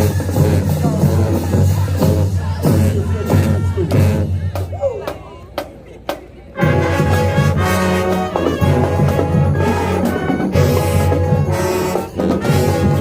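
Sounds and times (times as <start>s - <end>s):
brass band playing loud chords: 0.0s - 4.7s, 6.5s - 13.0s
heavy bass: 0.0s - 4.8s.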